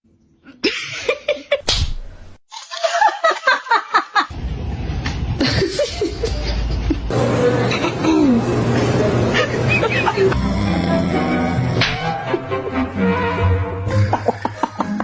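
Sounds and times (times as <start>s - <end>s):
sharp slap: 1.6s - 2.1s
rhythmic laughter: 5.4s - 12.8s, 13.8s - 15.0s.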